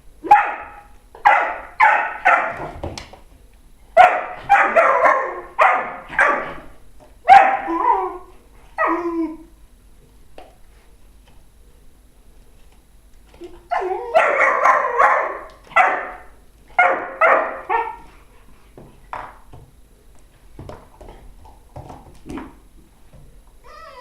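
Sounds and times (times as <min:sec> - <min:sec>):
dog barking: 0:00.2 - 0:02.7, 0:04.0 - 0:06.7, 0:07.3 - 0:07.9, 0:13.8 - 0:18.0.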